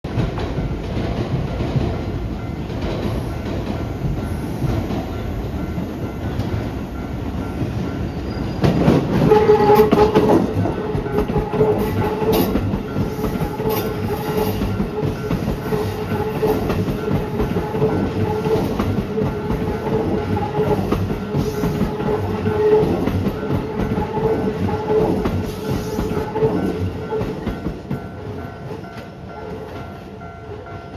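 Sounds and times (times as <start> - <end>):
train wheels knocking: 0.1 - 30.0
electric train running noise: 0.4 - 30.8.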